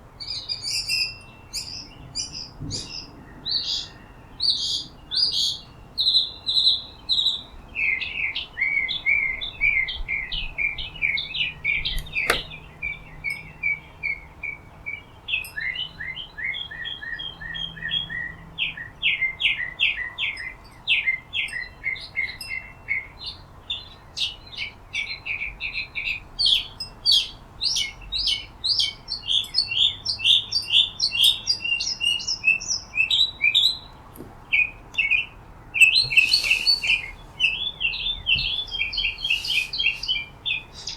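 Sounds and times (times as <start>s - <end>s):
songbirds chirping: 0.0s - 40.9s
sharp click: 11.9s - 12.6s.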